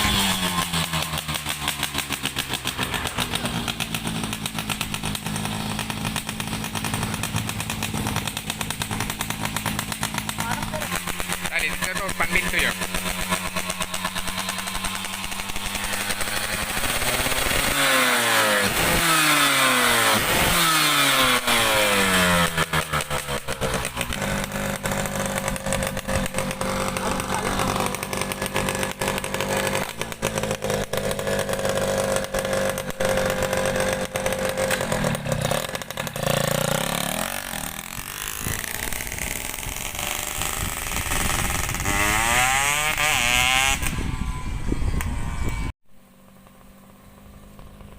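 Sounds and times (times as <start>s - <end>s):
two-stroke motorcycle engine revving: 0.0s - 47.9s.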